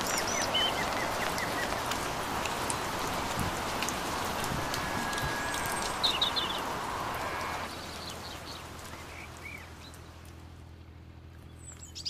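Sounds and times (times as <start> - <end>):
steady hiss: 0.0 - 8.4
birds chirping: 0.0 - 10.1
outdoor ambience: 0.0 - 12.0.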